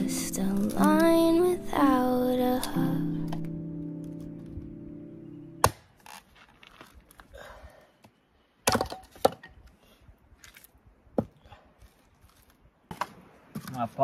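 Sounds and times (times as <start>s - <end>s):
axe chopping firewood: 5.6s - 6.0s, 8.6s - 9.6s, 11.2s - 11.4s.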